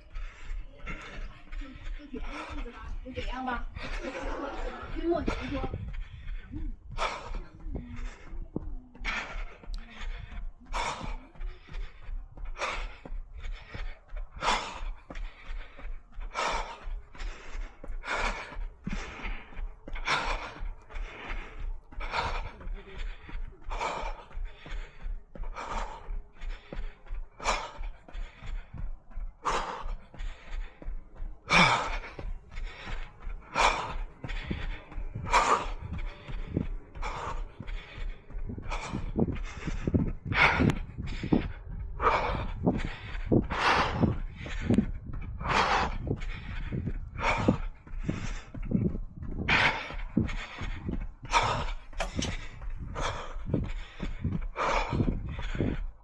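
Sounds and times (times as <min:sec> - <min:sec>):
runner breathing hard: 0:00.0 - 0:56.0.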